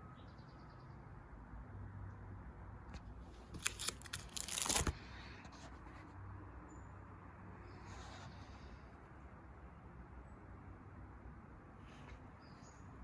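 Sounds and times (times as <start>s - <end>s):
album page rustling: 3.3s - 5.0s.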